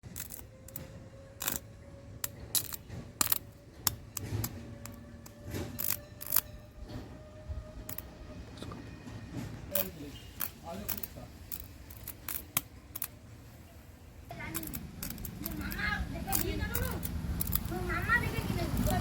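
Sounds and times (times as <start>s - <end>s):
small tools clicking and tapping: 0.0s - 6.6s, 7.9s - 8.1s, 9.7s - 13.2s, 14.3s - 19.0s.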